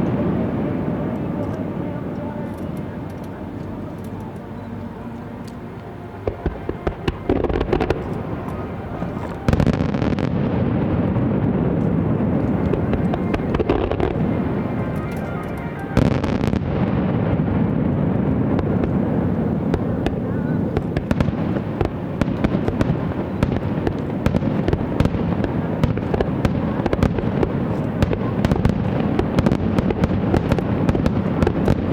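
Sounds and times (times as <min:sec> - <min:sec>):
fireworks crackling pops: 0:00.0 - 0:31.9.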